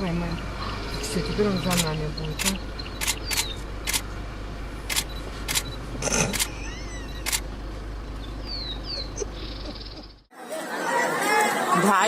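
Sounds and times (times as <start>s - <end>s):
steady low hum: 0.0s - 10.3s
sharp clicks: 1.6s - 4.0s, 4.9s - 6.6s, 7.2s - 7.4s.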